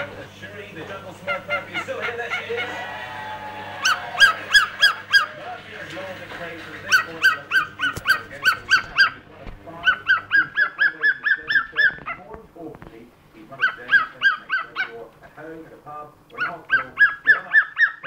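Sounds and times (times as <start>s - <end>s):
cockatiel yapping calls: 1.3s - 5.4s, 6.9s - 9.2s, 9.8s - 12.2s, 13.6s - 15.0s, 16.4s - 18.0s.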